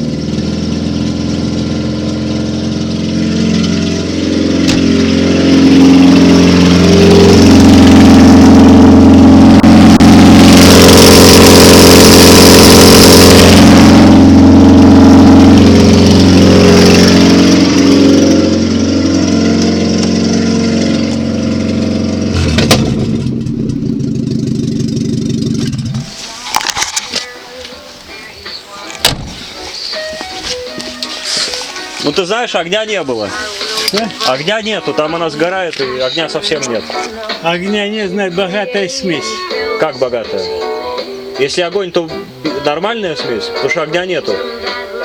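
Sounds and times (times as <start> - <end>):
car engine revving without muffler: 0.0 - 26.2.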